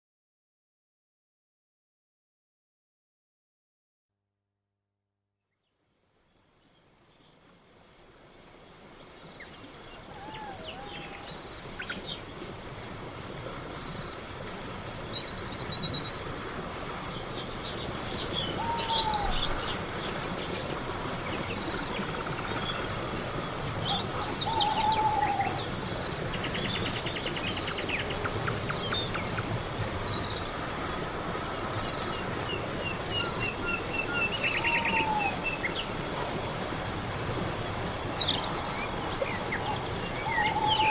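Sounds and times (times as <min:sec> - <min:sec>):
crickets chirping: 0:05.8 - 0:40.9
whistled bird calls: 0:18.4 - 0:19.6, 0:33.1 - 0:35.6, 0:39.5 - 0:40.9.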